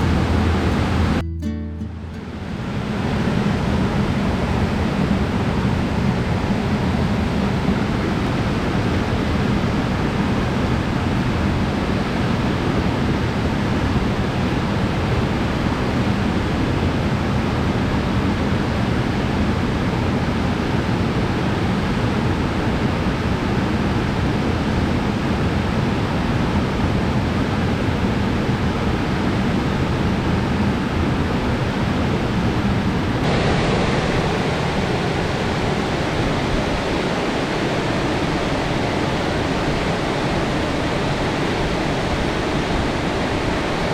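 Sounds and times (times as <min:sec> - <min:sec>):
waterfall rushing: 0:00.0 - 0:01.2, 0:33.2 - 0:43.9.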